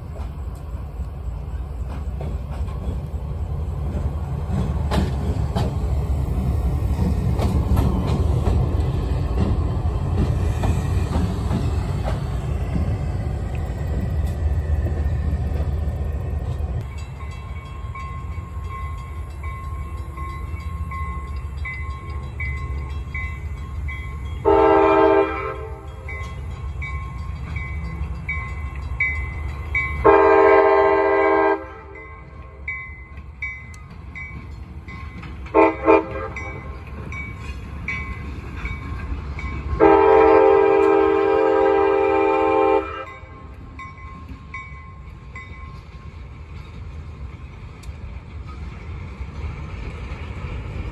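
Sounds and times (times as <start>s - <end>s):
freight train rumbling past: 0.0s - 50.9s
locomotive air horn blasts: 24.4s - 25.9s, 30.0s - 32.0s, 35.5s - 36.6s, 39.8s - 43.4s.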